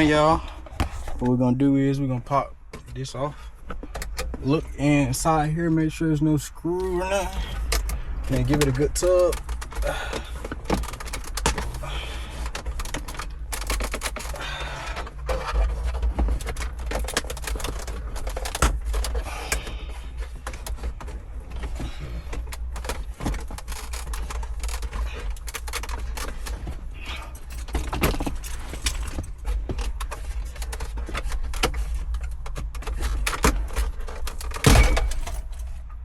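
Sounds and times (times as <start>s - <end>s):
steady low rumble: 0.0s - 36.0s
plastic trim panel being pried: 7.7s - 26.8s, 27.4s - 35.5s.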